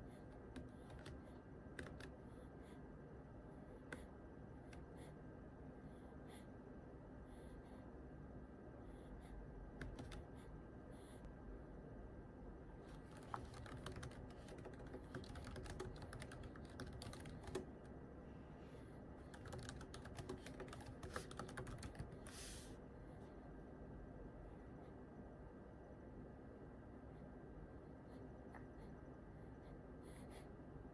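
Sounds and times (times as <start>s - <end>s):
computer keyboard typing: 0.9s - 2.2s, 9.8s - 10.3s, 13.1s - 17.9s, 19.2s - 22.2s.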